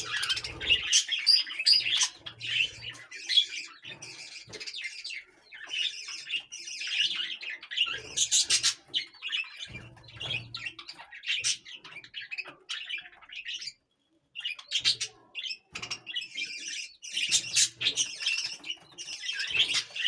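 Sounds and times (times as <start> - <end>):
parrots chirping: 0.0 - 9.5.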